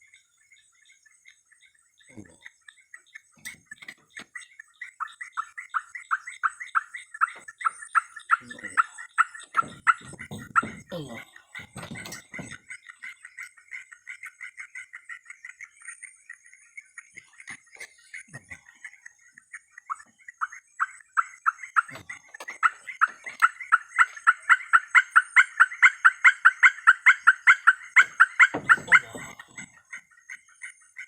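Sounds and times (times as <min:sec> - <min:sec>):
faint high insect-like whine: 0:00.0 - 0:03.2
animal calling in rapid notes: 0:19.9 - 0:31.0.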